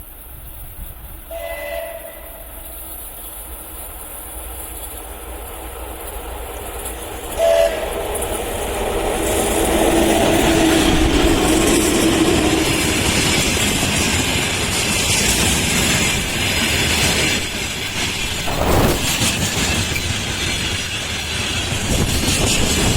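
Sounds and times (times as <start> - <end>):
freight train rumble: 0.0 - 22.9
locomotive two-note horn: 1.3 - 2.7, 7.4 - 8.0.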